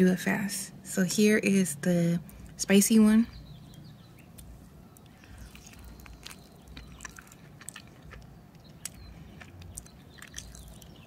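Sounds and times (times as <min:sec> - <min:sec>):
wet chewing mouth clicks: 0:03.7 - 0:11.0.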